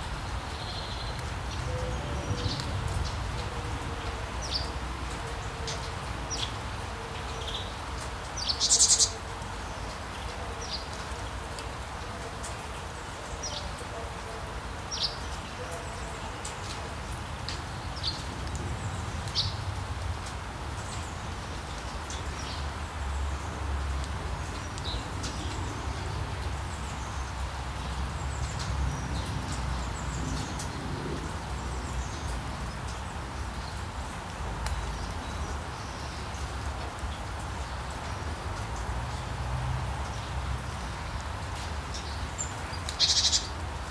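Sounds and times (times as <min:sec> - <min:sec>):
rain hiss: 0:00.0 - 0:43.9
small birds chirping: 0:40.0 - 0:43.6.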